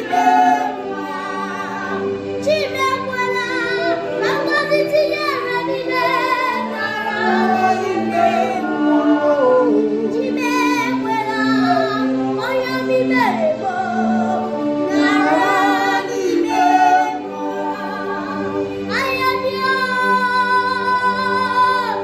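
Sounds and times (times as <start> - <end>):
held backing chords: 0.0 - 22.0
woman singing with vibrato: 0.0 - 22.0.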